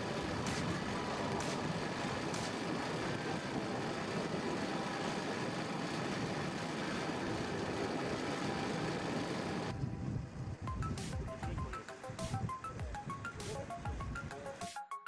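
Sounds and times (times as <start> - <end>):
jet engines roaring: 0.0 - 9.8.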